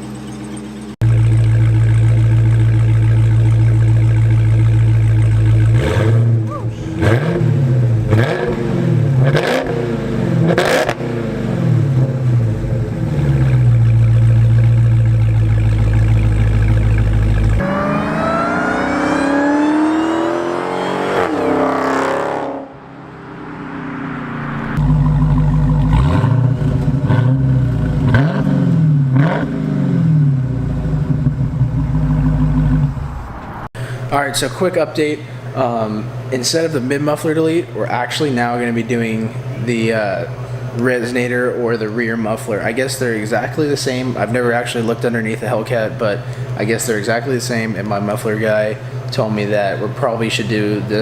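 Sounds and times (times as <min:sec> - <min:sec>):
car engine revving: 0:00.0 - 0:36.9.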